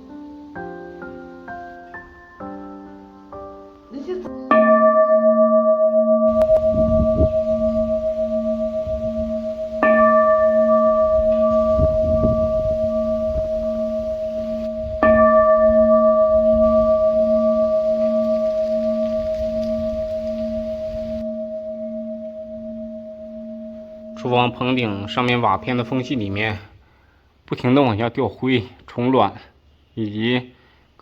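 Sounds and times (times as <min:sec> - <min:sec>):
bronze bell struck and ringing: 0:04.5 - 0:26.3.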